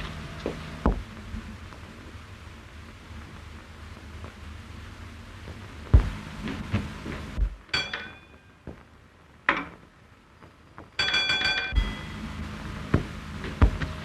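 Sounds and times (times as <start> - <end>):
rapid electric bell ringing: 7.7 - 8.4, 11.0 - 12.5
bell stroke: 11.0 - 12.3.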